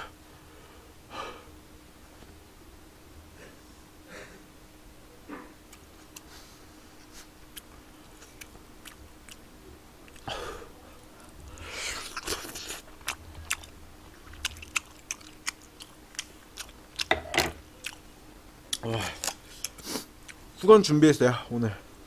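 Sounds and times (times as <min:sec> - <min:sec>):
person chewing food: 0:05.4 - 0:10.4, 0:11.2 - 0:18.1, 0:18.7 - 0:20.5.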